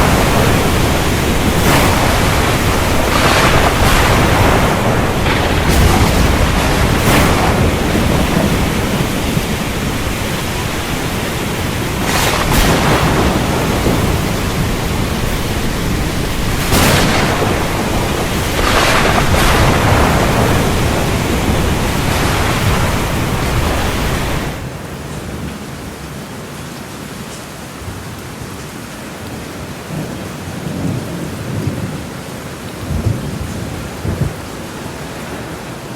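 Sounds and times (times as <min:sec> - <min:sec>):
surf: 0:00.0 - 0:24.7
thunder: 0:00.0 - 0:24.8, 0:32.8 - 0:35.5
rain: 0:00.0 - 0:35.9
wind: 0:00.0 - 0:35.9.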